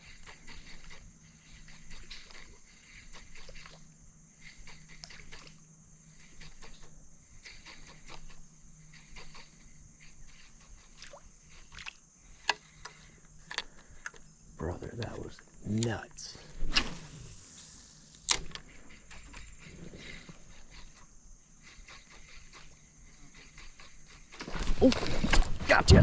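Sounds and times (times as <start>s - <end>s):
water lapping around boat: 0.0s - 5.6s, 6.2s - 13.3s
small clicks and ticks: 0.0s - 15.9s.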